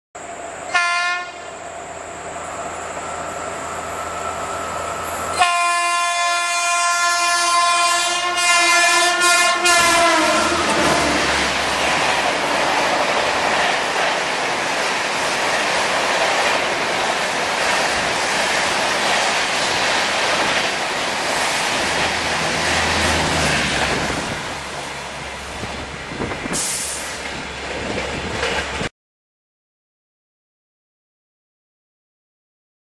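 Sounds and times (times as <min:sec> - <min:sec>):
locomotive horn blasts: 0:00.7 - 0:01.5, 0:05.3 - 0:11.3
train wheels clattering on rail: 0:09.7 - 0:24.9, 0:25.5 - 0:28.9.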